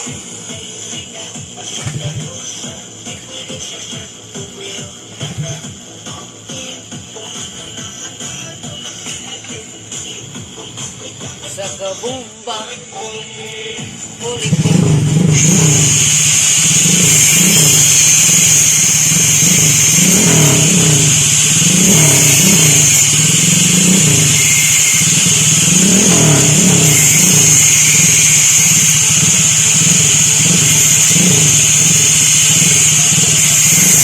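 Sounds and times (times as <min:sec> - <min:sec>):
motorcycle engine revving: 0:01.7 - 0:02.4, 0:05.2 - 0:05.7, 0:14.2 - 0:34.0.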